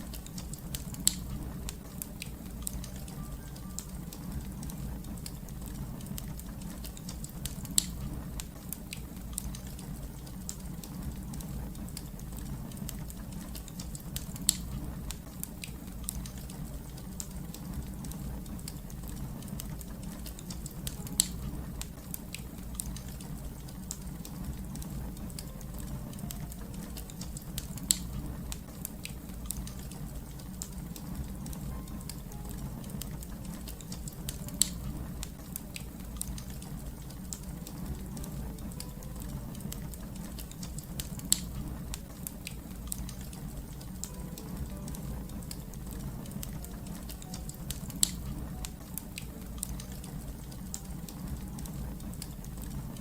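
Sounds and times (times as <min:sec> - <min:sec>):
sharp fire pops: 0:00.0 - 0:03.0, 0:04.6 - 0:16.7, 0:26.2 - 0:38.8
fire crackling: 0:00.0 - 0:53.0.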